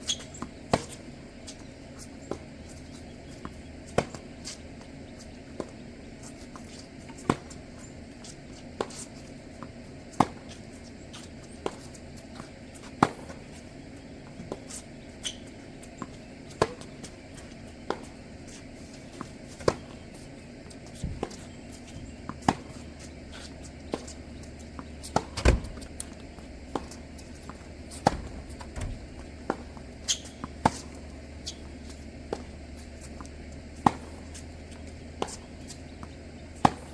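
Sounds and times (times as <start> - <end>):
tennis ball bouncing: 8.8 - 10.6, 14.2 - 36.9
racket hitting tennis ball: 22.3 - 34.5, 36.5 - 36.9.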